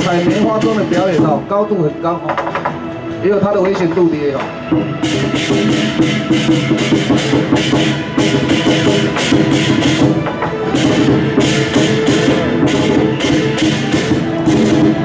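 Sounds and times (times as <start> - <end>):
drum beating: 0.0 - 15.0
gongs: 0.0 - 15.0
cymbal crashes: 4.7 - 15.0.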